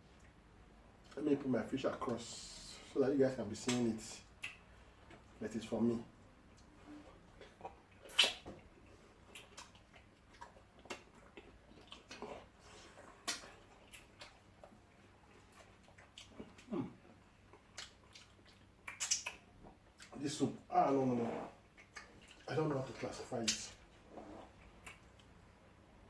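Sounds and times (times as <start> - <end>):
wet eating smacks and slurps: 6.6 - 20.2, 20.9 - 25.4.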